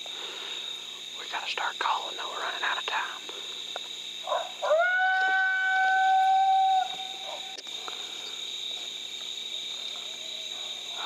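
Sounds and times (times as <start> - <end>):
coyote howl on predator call: 4.2 - 7.6.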